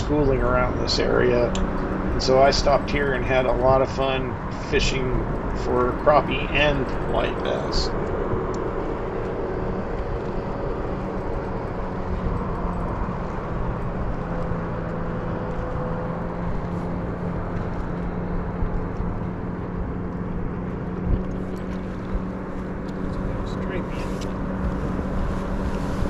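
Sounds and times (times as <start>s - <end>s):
low hum: 0.0s - 26.0s
road traffic rumble: 0.0s - 26.0s.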